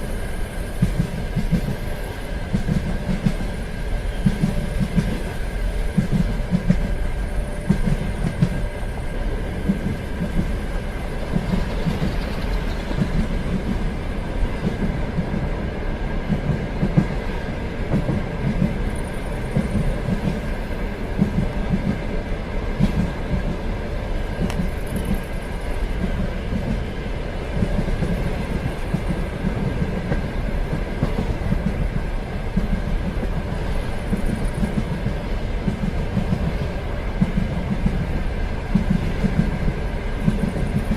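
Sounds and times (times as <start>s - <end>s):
train rumbling on rails: 0.0s - 40.9s.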